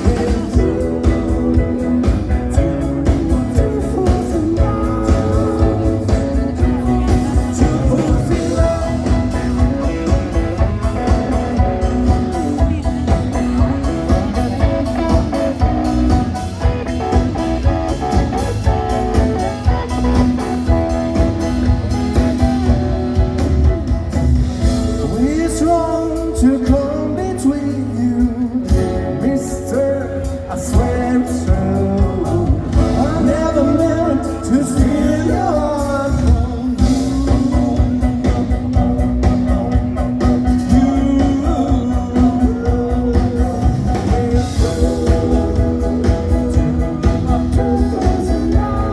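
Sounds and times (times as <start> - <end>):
person singing: 0.0 - 23.4, 24.5 - 48.9
rock and roll band playing: 0.0 - 48.9.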